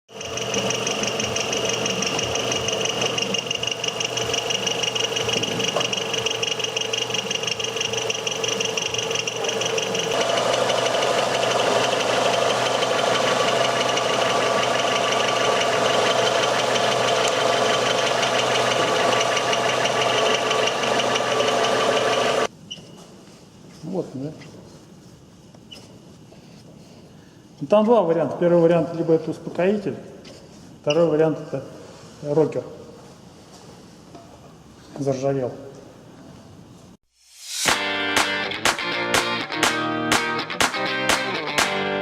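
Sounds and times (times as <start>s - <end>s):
engine ticking knock: 0.2s - 22.4s.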